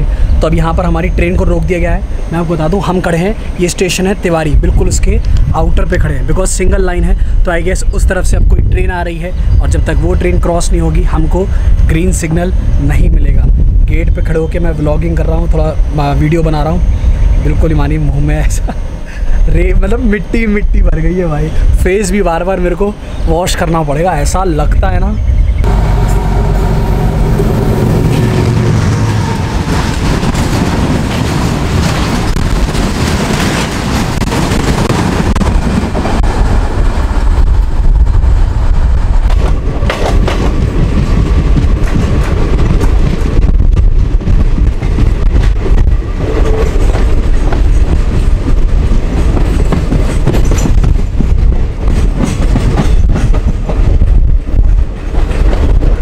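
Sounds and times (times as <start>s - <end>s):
diesel locomotive engine: 0.0s - 56.0s
train wheels clattering over rail joints: 39.2s - 56.0s.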